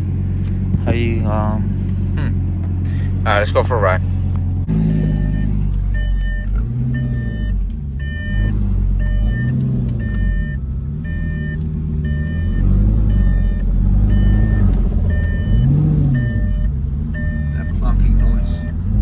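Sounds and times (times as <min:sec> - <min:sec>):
car engine running at low revs: 0:00.0 - 0:19.0
parking sensor warning beeps: 0:04.8 - 0:18.8.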